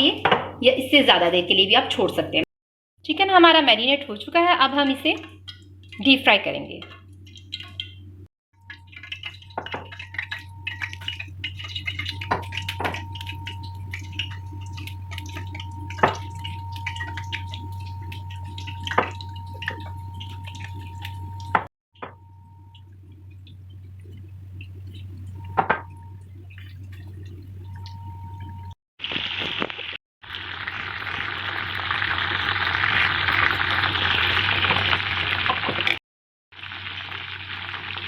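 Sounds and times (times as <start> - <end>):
chicken deep-frying in oil: 3.1 - 38.0
steady low hum: 5.1 - 28.8
constant high whine: 8.6 - 28.7.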